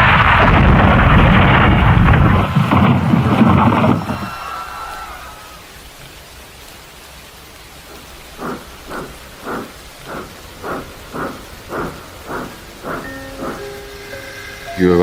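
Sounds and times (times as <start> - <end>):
rain hiss: 0.0 - 15.0
steam locomotive chuffing: 7.9 - 15.0.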